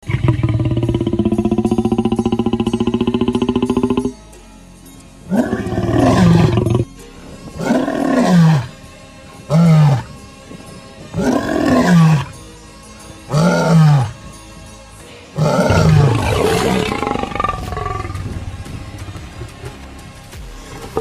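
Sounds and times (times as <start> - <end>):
lion roaring: 0.0 - 4.2, 5.3 - 8.8, 9.4 - 10.2, 11.0 - 12.4, 13.3 - 14.2, 15.4 - 19.5.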